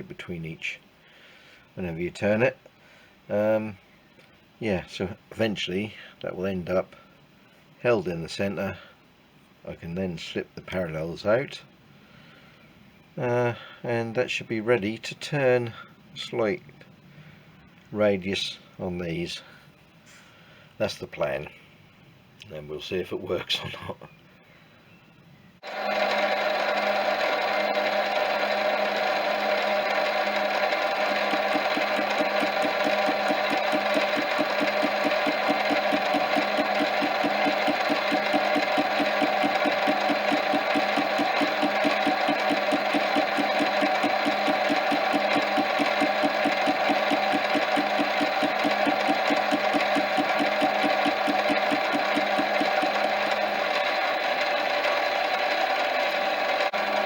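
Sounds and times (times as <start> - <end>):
metal lathe running: 25.6 - 57.0
fast regular ticking of cutting tool: 29.5 - 54.9.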